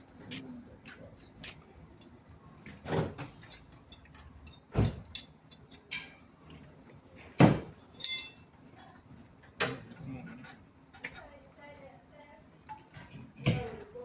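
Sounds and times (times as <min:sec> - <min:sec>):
tools and metal parts clicking: 0:01.4 - 0:02.1, 0:03.2 - 0:06.2, 0:07.9 - 0:08.4
ringing metal clink: 0:08.0 - 0:08.4.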